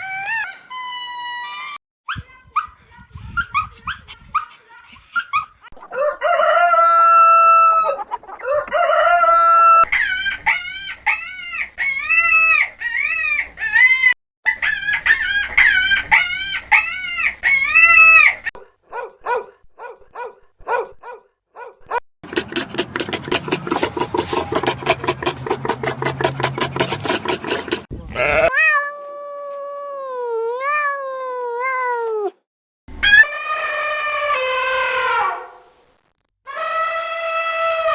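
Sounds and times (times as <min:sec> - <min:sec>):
farm animal calls: 0:02.2 - 0:06.1, 0:22.3 - 0:28.6.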